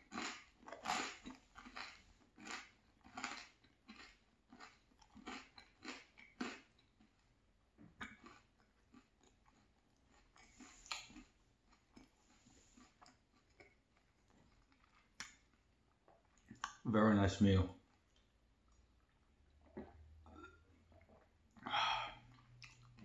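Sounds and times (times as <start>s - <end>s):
person chewing food: 0.0s - 16.8s, 17.8s - 23.0s.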